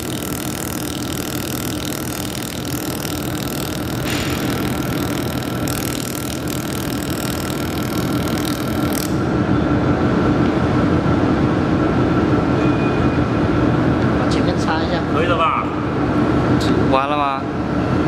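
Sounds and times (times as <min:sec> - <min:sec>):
welding machine hum: 0:00.0 - 0:09.4.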